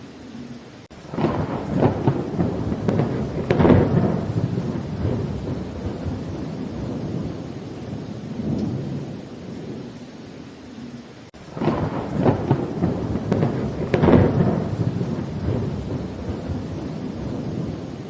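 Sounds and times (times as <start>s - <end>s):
steady rain: 0.0s - 18.0s
distant thunder rumbling: 0.3s - 10.1s, 10.7s - 18.0s
close thunderclap: 1.0s - 9.9s, 11.5s - 18.0s.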